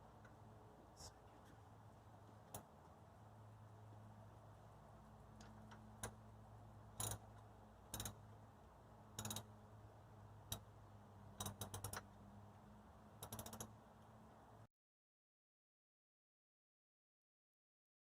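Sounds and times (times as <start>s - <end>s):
low steady hum: 0.0s - 14.7s
ratchet wrench clicking: 7.0s - 7.2s, 7.9s - 8.2s, 9.2s - 9.5s, 11.4s - 12.1s, 13.2s - 13.8s.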